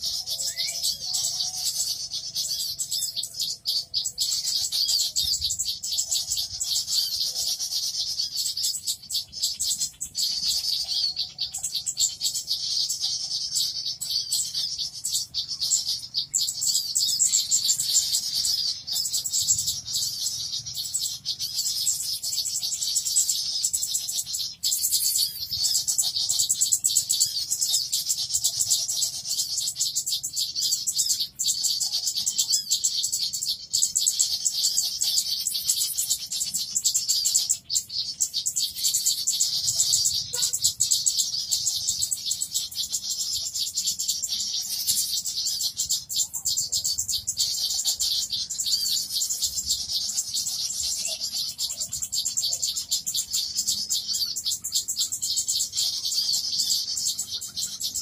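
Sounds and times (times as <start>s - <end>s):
small birds chirping and chattering: 0.0s - 58.0s.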